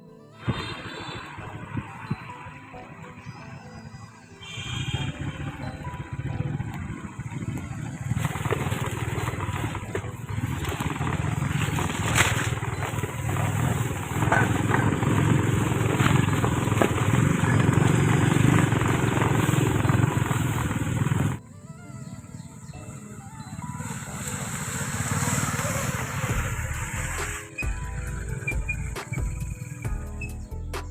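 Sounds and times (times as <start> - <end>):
motorcycle engine running: 0.4 - 30.9
knocks and rattles over bumps: 5.8 - 21.4.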